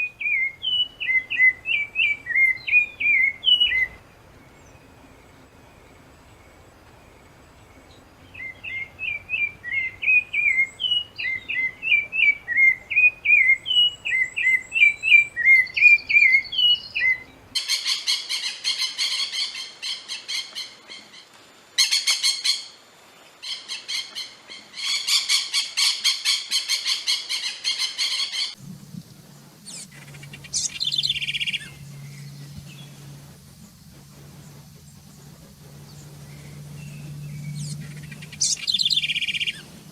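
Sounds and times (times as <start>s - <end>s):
low steady hum: 0.0s - 17.6s, 28.5s - 39.9s
bird buzzing trill: 28.5s - 39.9s.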